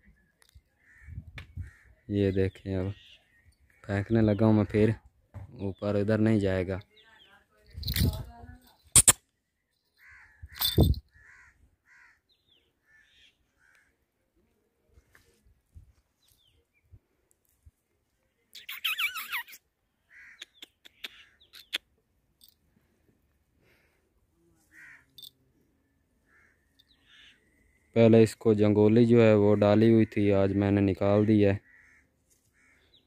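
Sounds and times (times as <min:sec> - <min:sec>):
harsh bird caws: 0:00.8 - 0:02.1, 0:10.0 - 0:14.0, 0:20.0 - 0:21.6, 0:24.7 - 0:25.3, 0:26.2 - 0:27.5, 0:29.8 - 0:33.0
sharp clicks: 0:08.9 - 0:09.3.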